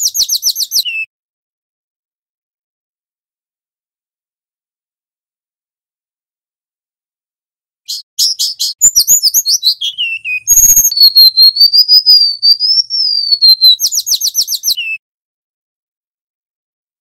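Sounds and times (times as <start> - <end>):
bird singing whistled notes: 0.0 - 1.1, 7.9 - 15.0.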